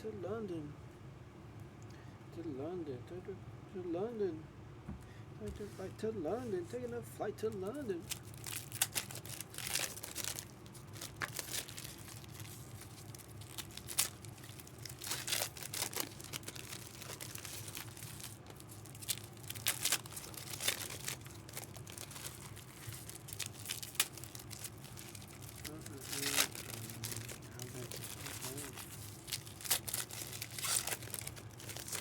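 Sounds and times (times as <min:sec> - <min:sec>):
steady low hum: 0:00.0 - 0:32.0
card pack wrappers crinkling: 0:07.4 - 0:32.0.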